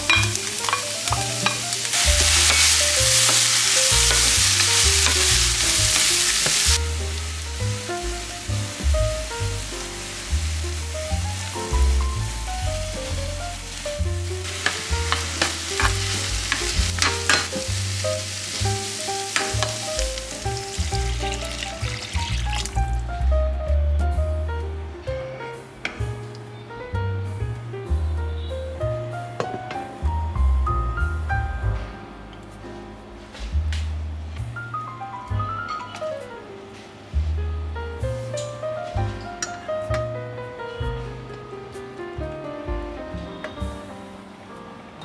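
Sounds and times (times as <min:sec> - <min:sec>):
food sizzling in a frying pan: 0:00.0 - 0:23.0.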